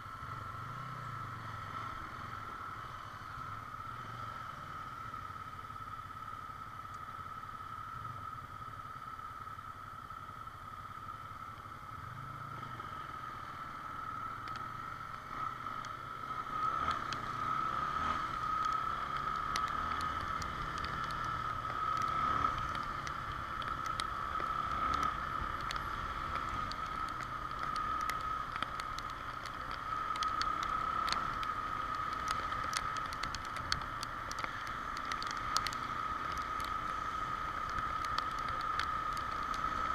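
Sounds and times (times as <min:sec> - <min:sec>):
raindrops ticking on camera: 0:13.5 - 0:39.9.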